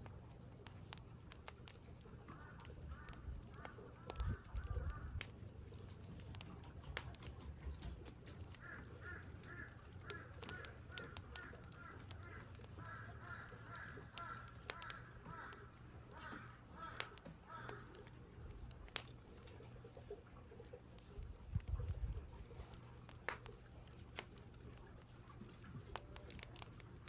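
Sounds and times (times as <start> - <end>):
sharp clicks: 0.0 - 20.1
crows cawing: 2.3 - 5.2, 8.5 - 18.1.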